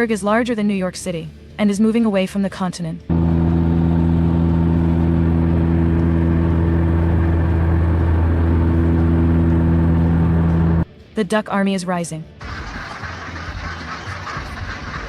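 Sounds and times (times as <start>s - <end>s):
engine drone: 3.1s - 10.8s.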